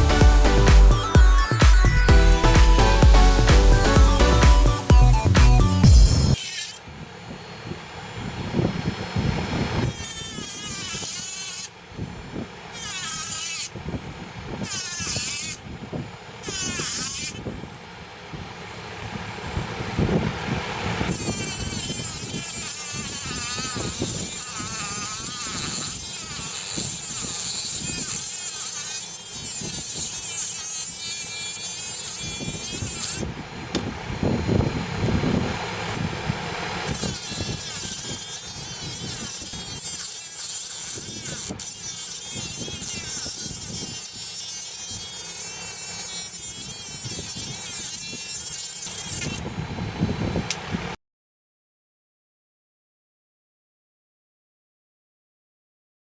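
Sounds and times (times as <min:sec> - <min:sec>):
small electric motor whirring: 0:00.0 - 0:51.0.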